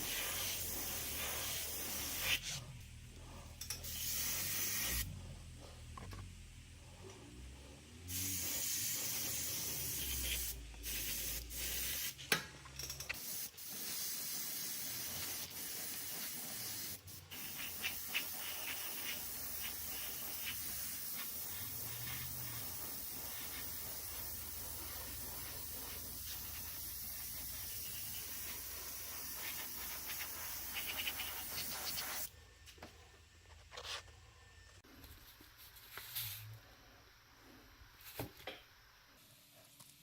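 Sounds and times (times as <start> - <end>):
spray hissing: 0.0 - 2.6, 3.8 - 5.1, 8.1 - 12.2, 13.2 - 32.3.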